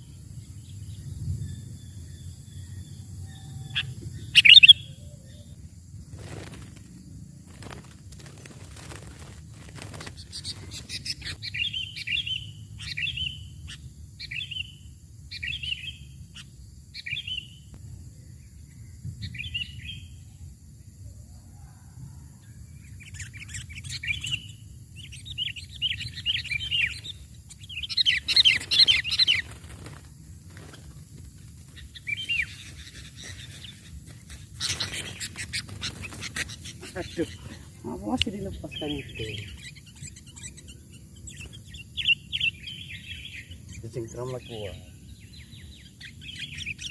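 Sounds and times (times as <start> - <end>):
bulbuls chirping and chattering: 0.0 - 17.5, 22.8 - 46.9.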